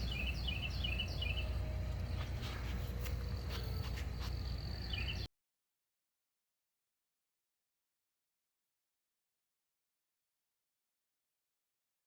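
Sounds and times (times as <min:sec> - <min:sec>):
small bird chirping: 0:00.0 - 0:05.3
steady low rumble: 0:00.0 - 0:05.3.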